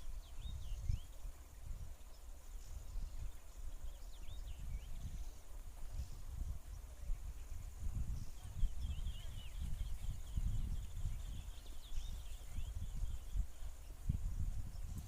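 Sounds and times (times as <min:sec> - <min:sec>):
small birds twittering: 0:00.0 - 0:15.0
wind rumble on microphone: 0:00.0 - 0:15.0.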